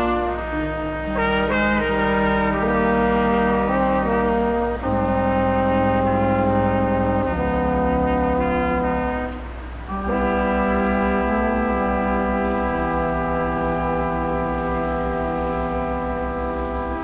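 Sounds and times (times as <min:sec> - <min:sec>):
brass ensemble playing held chords: 0:00.0 - 0:17.0.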